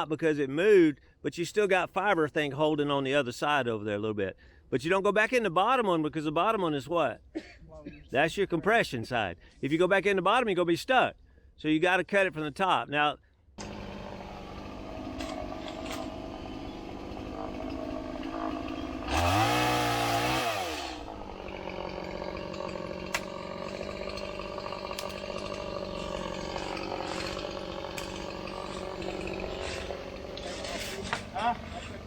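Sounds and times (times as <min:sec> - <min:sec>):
chainsaw engine revving: 0:13.6 - 0:32.0.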